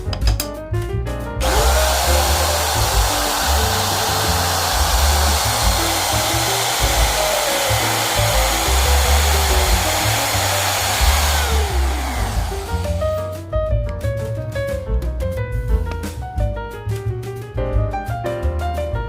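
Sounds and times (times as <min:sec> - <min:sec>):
background music with bass: 0:00.0 - 0:19.0
power tool whirring: 0:01.4 - 0:13.2.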